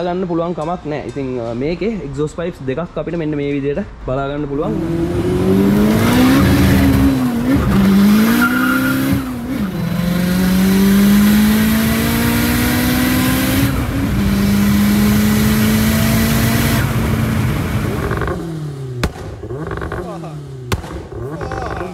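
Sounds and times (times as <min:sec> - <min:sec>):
car engine accelerating through gears: 0:04.6 - 0:21.9.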